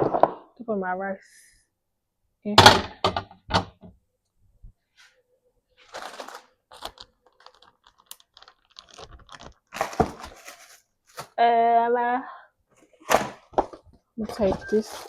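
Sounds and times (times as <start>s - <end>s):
food packaging rustling: 5.8s - 11.4s, 12.8s - 15.0s.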